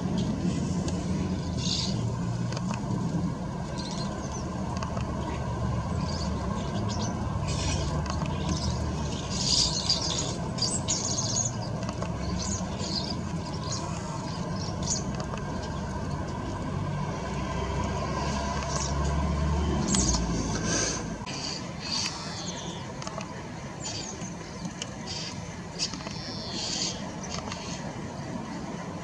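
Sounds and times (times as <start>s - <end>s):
steady low rumble: 0.0s - 21.4s
garden birds chirping: 0.0s - 28.8s.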